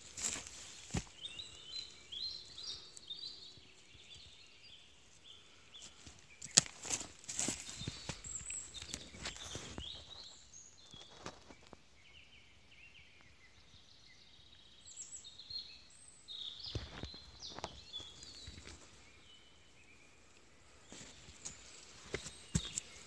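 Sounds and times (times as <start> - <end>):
footsteps on stony soil: 0.0 - 2.8, 5.8 - 11.7, 20.8 - 23.0
songbirds singing: 0.0 - 23.0.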